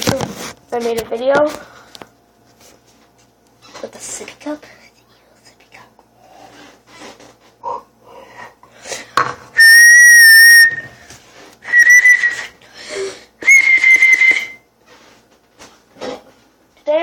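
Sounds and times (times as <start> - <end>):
high-pitched whistles: 9.6 - 11.0, 11.6 - 12.5, 13.4 - 14.7.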